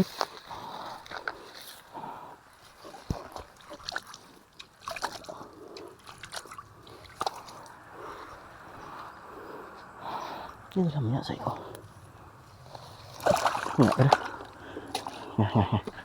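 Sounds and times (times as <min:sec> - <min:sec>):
water sloshing and splashing: 0:00.0 - 0:09.6, 0:11.7 - 0:16.0.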